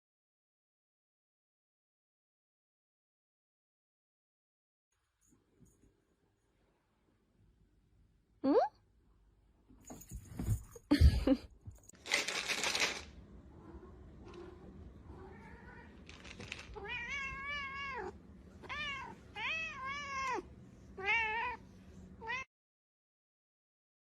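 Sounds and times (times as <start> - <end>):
cat meowing: 16.8 - 21.6, 22.2 - 22.5.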